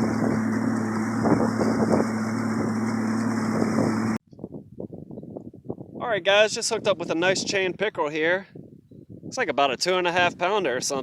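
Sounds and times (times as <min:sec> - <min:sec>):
engine running steadily: 0:00.0 - 0:04.2
wind on microphone: 0:00.0 - 0:11.0.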